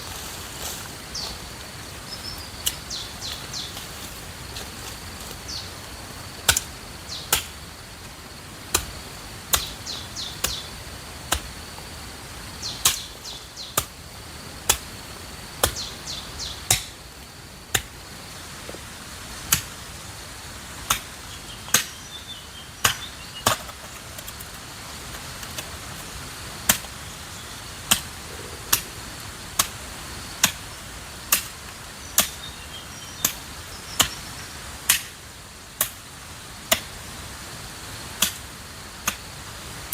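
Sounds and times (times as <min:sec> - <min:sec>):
high insect buzz: 0:00.0 - 0:17.5, 0:27.1 - 0:31.1
bird chirps: 0:02.0 - 0:04.1.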